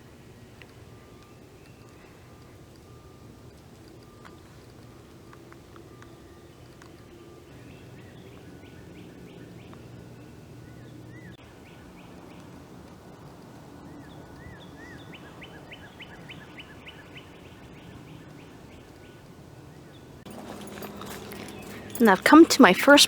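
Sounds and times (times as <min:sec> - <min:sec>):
wild birds calling and singing: 0:20.3 - 0:22.3.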